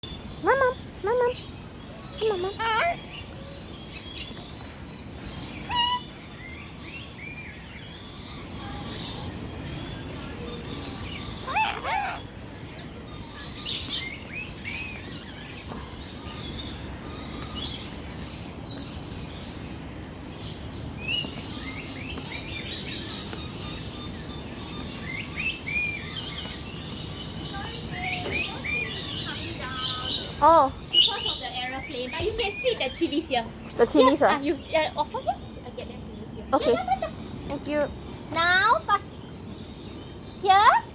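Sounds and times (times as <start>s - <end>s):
birds chirping and screeching: 0.0s - 40.9s
steady background noise: 0.0s - 40.9s.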